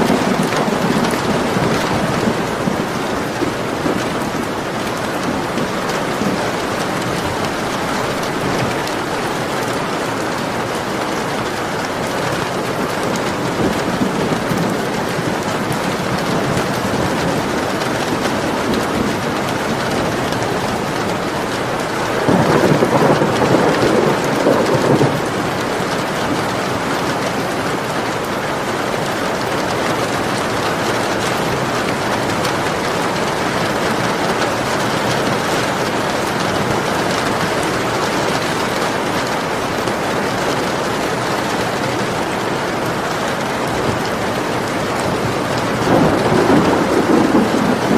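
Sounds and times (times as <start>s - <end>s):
thunder rumble: 0.0s - 11.1s, 11.9s - 26.8s, 40.8s - 47.9s
steady rain falling: 0.0s - 47.9s.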